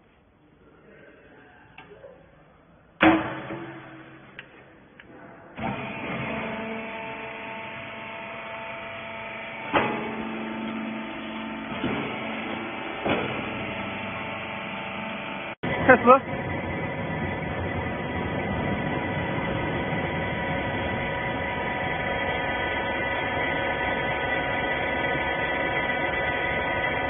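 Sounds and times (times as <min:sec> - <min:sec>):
baler motor humming: 0:05.6 - 0:27.0.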